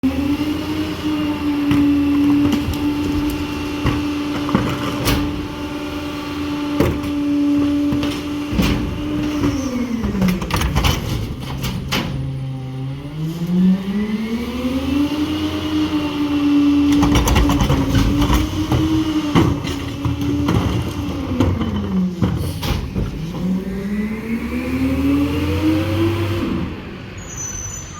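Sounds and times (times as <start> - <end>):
garbage truck engine: 0.0 - 27.9
clanks and knocks: 1.6 - 5.7, 6.7 - 12.4, 16.9 - 23.6.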